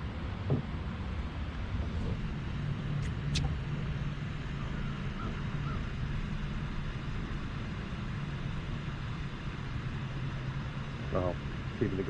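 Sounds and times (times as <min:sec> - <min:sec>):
boat motor humming: 0:00.0 - 0:12.0
sharp click: 0:03.0 - 0:03.6.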